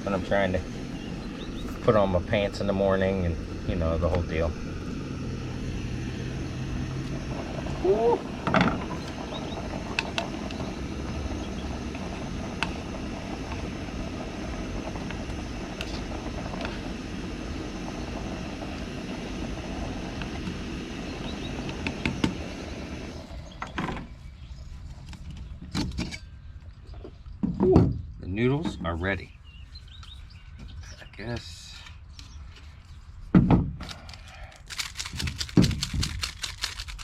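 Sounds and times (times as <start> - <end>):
stove burner running: 0.0 - 23.8.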